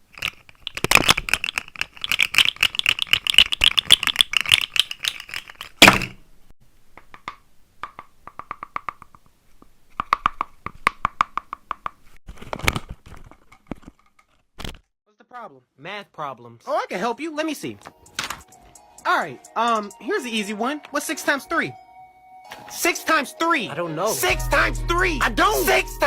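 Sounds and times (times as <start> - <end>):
clicking and rattling: 0.0 - 6.1
loud thunk: 5.8 - 6.2.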